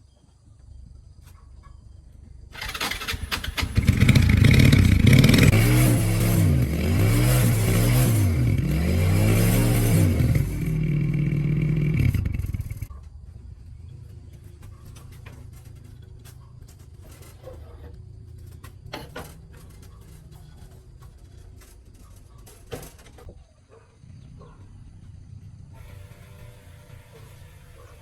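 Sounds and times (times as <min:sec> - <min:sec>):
motorbike engine revving: 0:02.6 - 0:12.9, 0:24.0 - 0:28.0.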